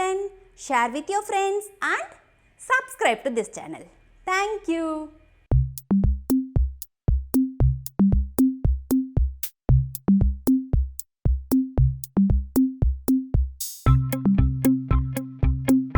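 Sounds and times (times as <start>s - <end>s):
plucky bass notes: 5.5s - 6.6s, 7.4s - 8.6s, 9.7s - 10.4s, 11.6s - 12.7s, 13.9s - 15.9s
electronic drum machine beat: 5.5s - 15.9s.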